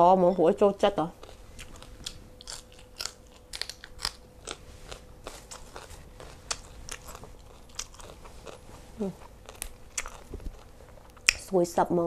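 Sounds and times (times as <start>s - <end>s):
crunchy chewing of raw vegetables: 1.2s - 11.5s.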